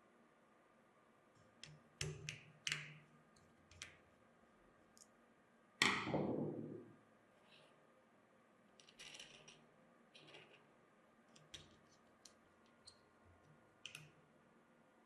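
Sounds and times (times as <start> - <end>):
faint small clicks: 4.9 - 5.2, 11.3 - 14.2.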